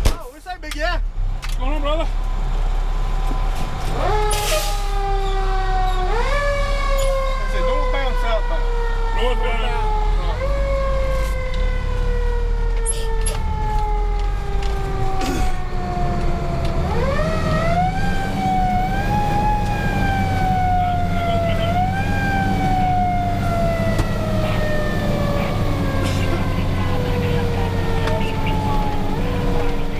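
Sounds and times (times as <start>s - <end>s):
diesel engine rumble: 0.0s - 29.9s
fire engine siren: 2.3s - 29.9s.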